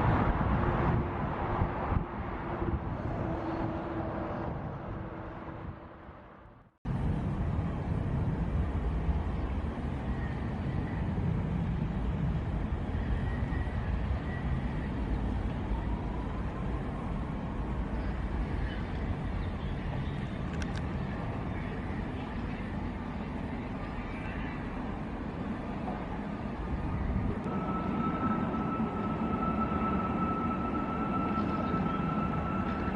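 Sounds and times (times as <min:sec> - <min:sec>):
jet engines rumbling: 0:00.0 - 0:32.9
rising engine whine: 0:27.2 - 0:32.9.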